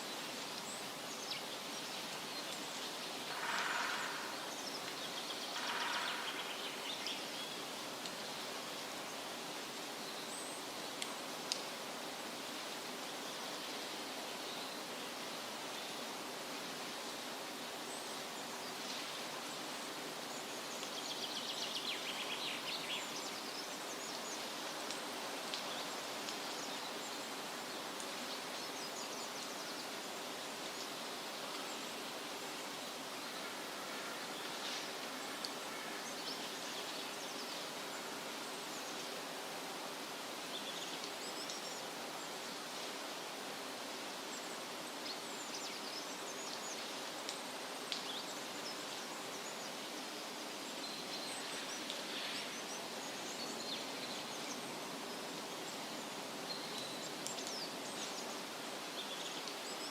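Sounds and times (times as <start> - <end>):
wind rustling leafy trees: 0.0 - 59.9.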